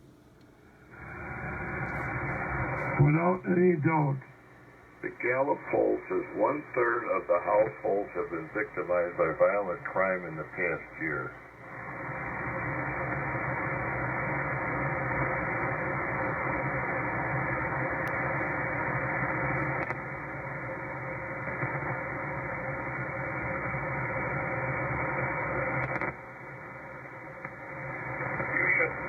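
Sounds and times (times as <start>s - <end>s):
harsh buzzing radio hiss: 0.0s - 29.0s.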